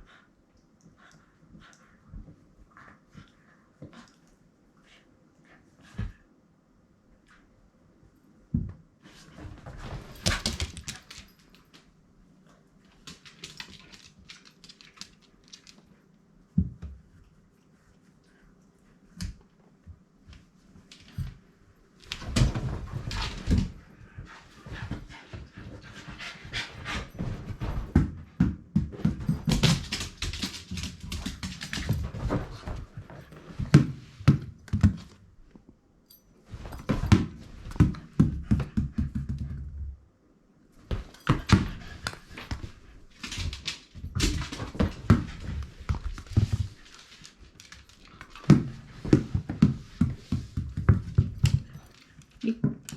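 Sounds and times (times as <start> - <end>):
dog panting: 0.0 - 6.2.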